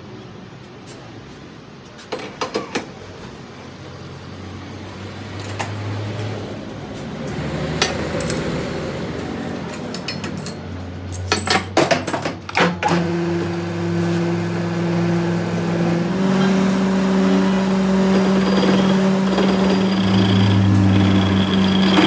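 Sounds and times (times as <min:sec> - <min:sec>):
metal parts clinking: 0:09.6 - 0:12.5
low machine hum: 0:12.9 - 0:22.0.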